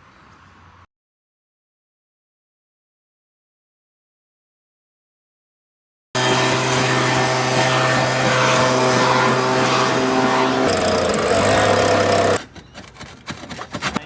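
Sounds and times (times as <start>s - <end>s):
small engine machine hissing: 6.2s - 12.4s.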